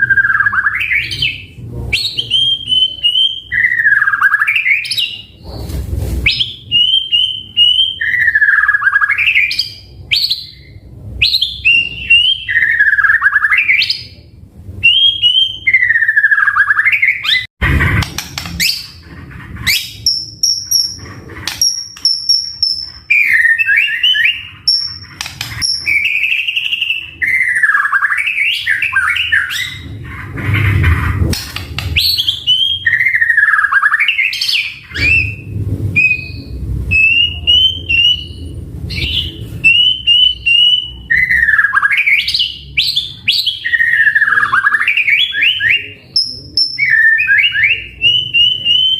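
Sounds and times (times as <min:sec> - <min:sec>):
bird singing whistled phrases: 0:00.0 - 0:05.3, 0:06.3 - 0:14.2, 0:14.8 - 0:17.5, 0:21.6 - 0:29.9, 0:32.0 - 0:48.9.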